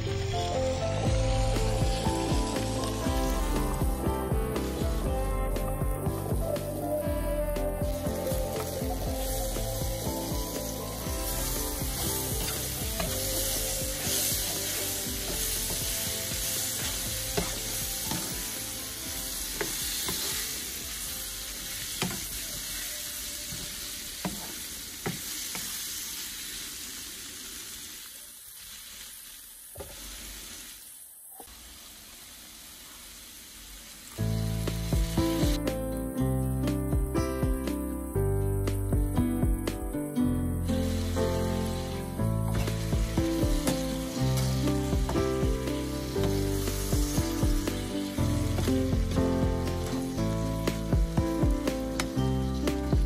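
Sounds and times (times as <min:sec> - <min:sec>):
food sizzling in oil: 0:00.0 - 0:53.0.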